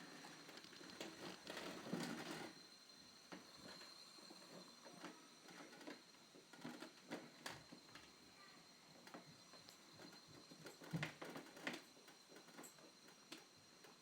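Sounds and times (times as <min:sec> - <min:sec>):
faint clicks and rustling: 0:04.5 - 0:08.1.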